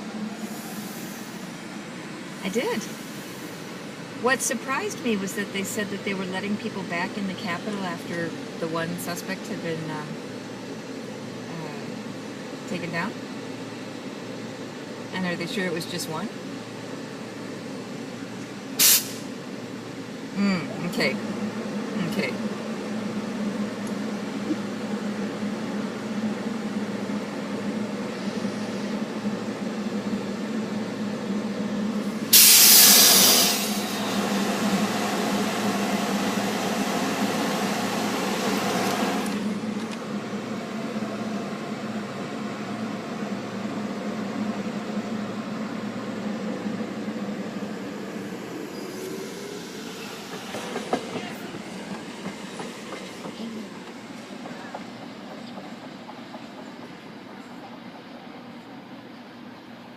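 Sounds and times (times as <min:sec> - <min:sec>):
commuter train running: 0:00.0 - 0:59.9
air hiss: 0:00.4 - 0:01.6, 0:18.8 - 0:19.3, 0:32.1 - 0:39.3.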